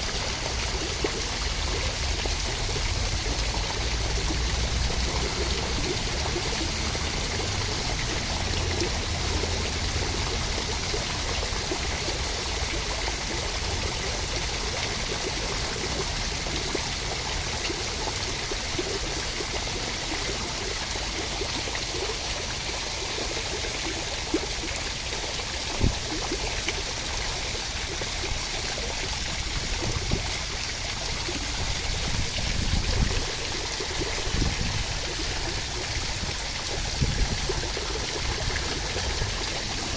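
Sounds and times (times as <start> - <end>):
steady rain: 0.0 - 20.2, 22.4 - 39.9.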